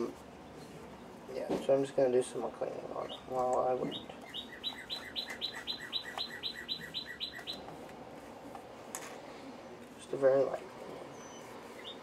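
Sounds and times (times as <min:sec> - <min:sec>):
songbird calling: 0:02.9 - 0:07.7, 0:11.1 - 0:12.0.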